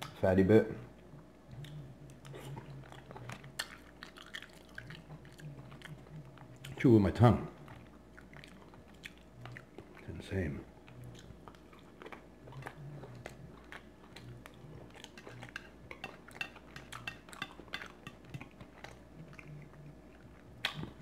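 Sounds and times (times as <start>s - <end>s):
quiet chewing: 0.0s - 21.0s.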